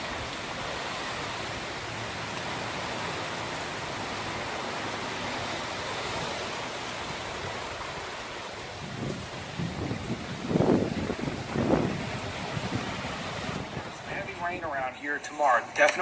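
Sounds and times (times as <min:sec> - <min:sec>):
heavy rain hissing: 0:00.0 - 0:16.0.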